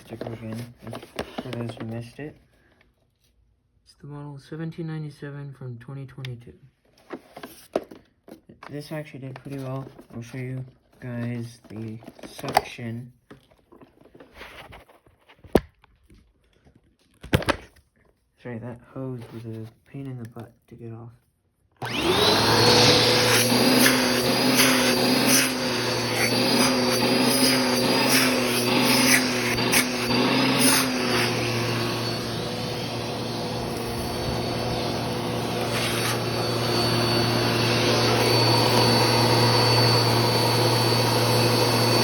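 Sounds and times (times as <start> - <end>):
vacuum cleaner motor whine: 21.8 - 42.0.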